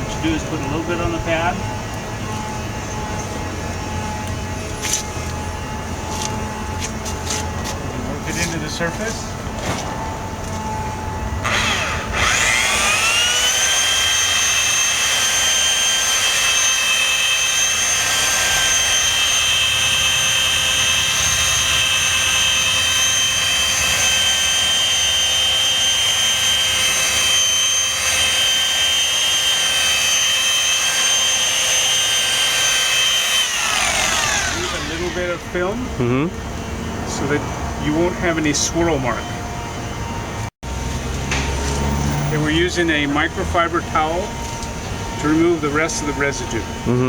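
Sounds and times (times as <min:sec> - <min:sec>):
electric polisher running: 0:06.0 - 0:07.8, 0:11.4 - 0:35.6.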